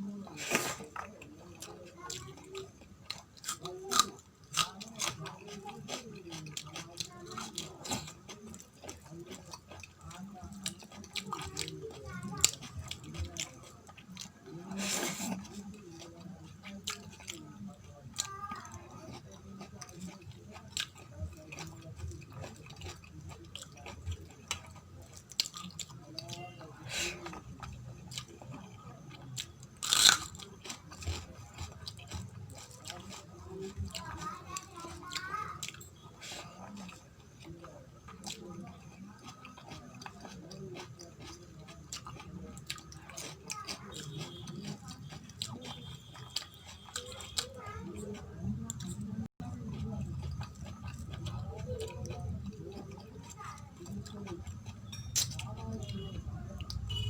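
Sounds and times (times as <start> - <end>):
chewing and crunching food: 0.0 - 57.0
crunchy bite: 3.1 - 5.2, 29.4 - 34.0.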